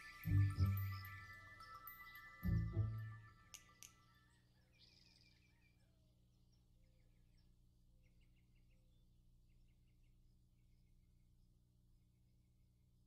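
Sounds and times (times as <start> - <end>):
music: 0.0 - 6.1
faint birds chirping: 0.0 - 13.0.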